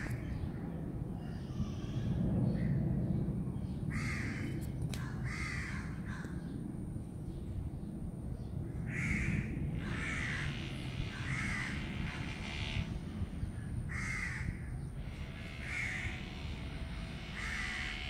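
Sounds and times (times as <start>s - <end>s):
steady low rumble: 0.0s - 18.0s
bird calling: 8.9s - 18.0s.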